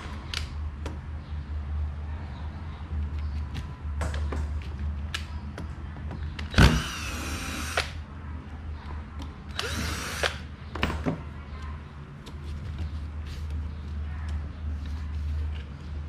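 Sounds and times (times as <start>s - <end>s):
power drill whirring: 6.5s - 7.9s, 9.6s - 10.4s.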